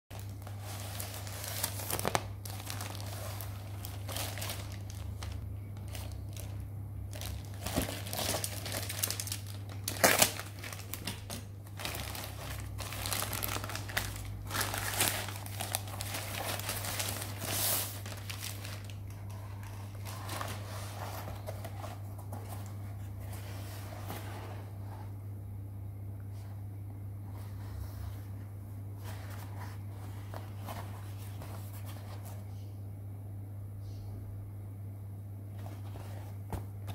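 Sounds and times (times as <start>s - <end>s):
plastic packaging crinkling: 0.1s - 22.7s
steady low hum: 0.1s - 36.9s.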